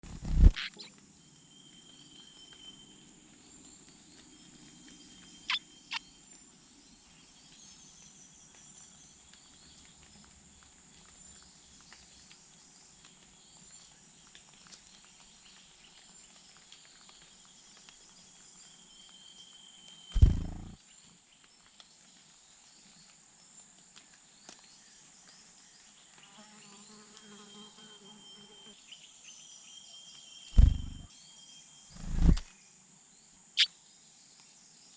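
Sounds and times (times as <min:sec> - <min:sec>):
insect drone: 0:20.0 - 0:20.8, 0:30.6 - 0:31.1, 0:31.8 - 0:32.6.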